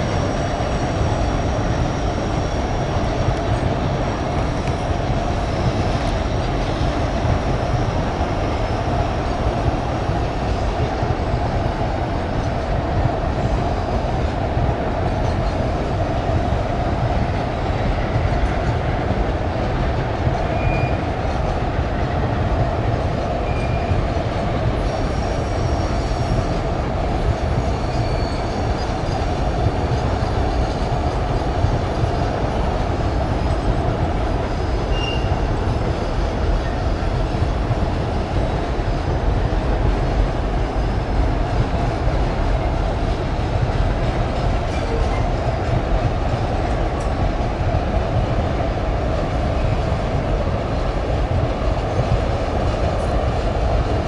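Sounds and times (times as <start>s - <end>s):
train wheels rumbling on rail: 0.0s - 54.0s
faint wheel squeals: 20.5s - 21.1s, 27.8s - 29.1s, 34.9s - 35.4s.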